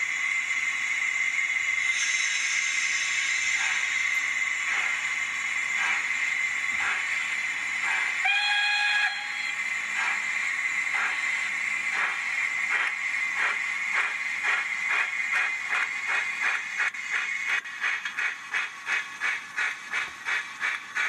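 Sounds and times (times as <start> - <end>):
steam exhaust chuffs: 0.0 - 21.0
steam hiss: 0.0 - 21.0
train whistle blast: 8.2 - 9.6.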